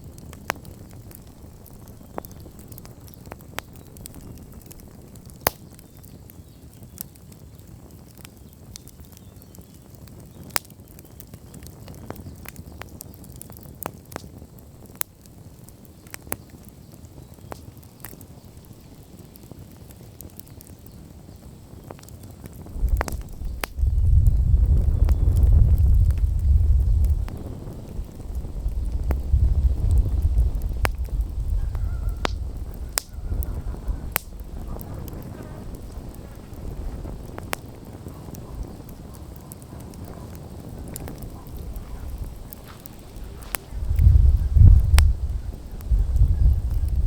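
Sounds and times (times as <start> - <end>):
campfire crackling and popping: 0.0 - 47.0
faint hiss: 16.7 - 47.0.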